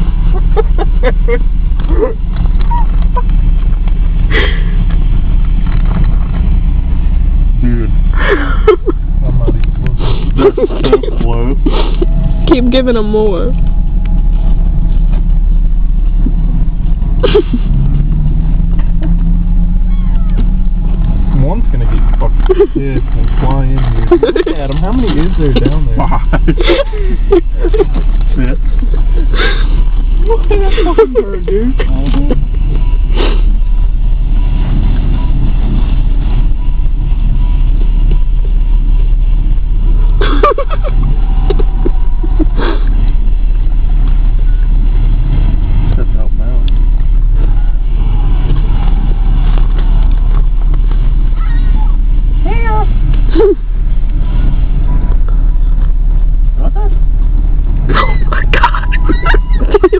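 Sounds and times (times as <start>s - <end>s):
steady low rumble: 0.0s - 59.9s
vehicle engine idling: 0.0s - 59.9s
short pitched cries: 19.9s - 20.4s.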